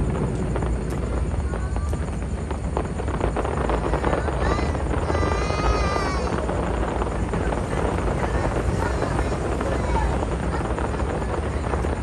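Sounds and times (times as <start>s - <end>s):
faint firework pops: 0.0s - 12.0s
steady low rumble: 0.0s - 12.0s
crowd talking and calling out: 3.6s - 12.0s.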